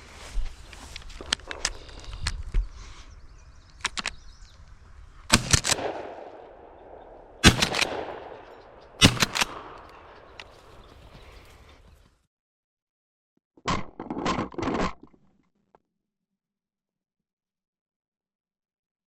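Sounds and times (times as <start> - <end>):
gunshots with echo: 5.3 - 10.8.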